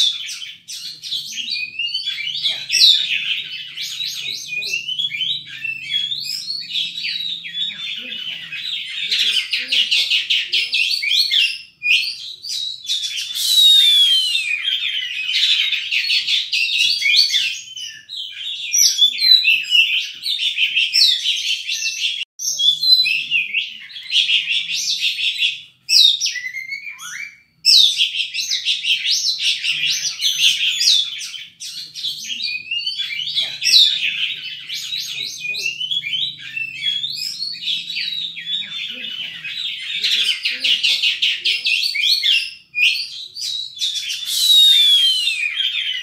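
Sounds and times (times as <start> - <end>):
magpie-robin singing: 0.0 - 46.0.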